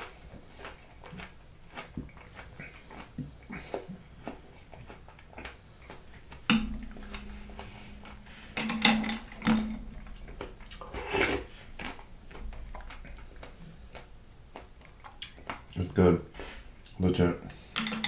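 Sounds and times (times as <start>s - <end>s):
chewing: 0.0s - 5.6s
spoon knocking against bowl: 6.5s - 10.2s.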